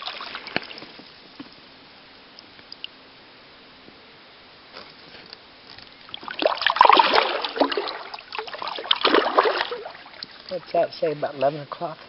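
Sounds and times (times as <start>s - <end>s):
water splashing and dripping: 0.0s - 1.0s, 6.0s - 10.8s
kayak paddle strokes in water: 0.0s - 1.6s, 4.8s - 11.9s.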